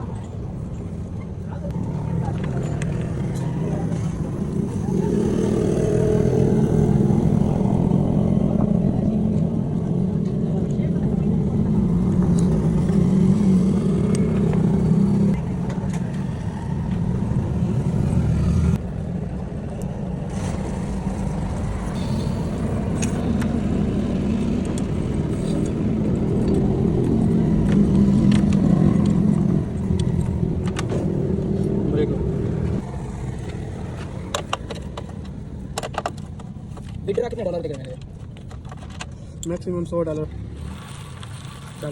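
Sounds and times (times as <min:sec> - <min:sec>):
motorcycle engine running: 0:02.0 - 0:19.0, 0:20.3 - 0:35.6.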